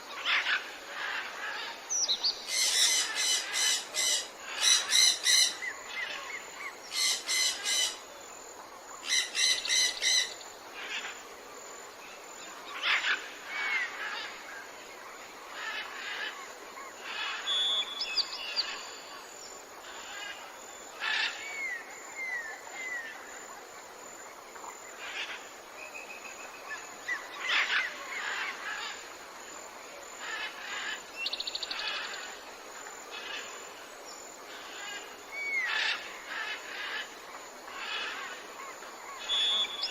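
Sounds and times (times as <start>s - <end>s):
steady background hiss: 0.0s - 39.9s
bird trill: 39.2s - 39.9s.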